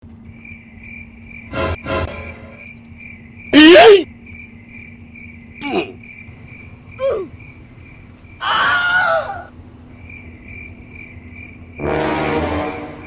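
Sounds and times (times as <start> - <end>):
crickets chirping: 0.0 - 13.0
loud voice-like cries: 3.6 - 4.1, 8.4 - 9.5.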